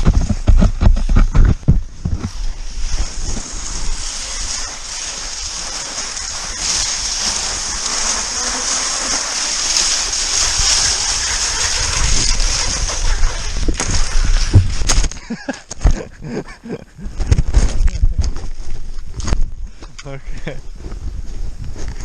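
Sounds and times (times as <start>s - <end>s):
skis sliding over snow: 0.0s - 15.4s.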